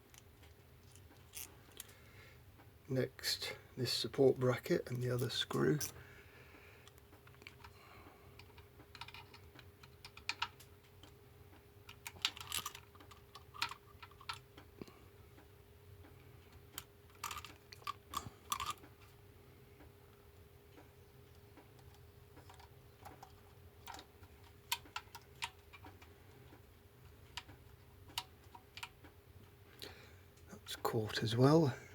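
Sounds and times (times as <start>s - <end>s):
faint steady hum: 0.0s - 31.9s
small metal parts clinking: 0.1s - 1.9s, 5.1s - 6.0s, 11.9s - 14.4s, 16.8s - 18.9s.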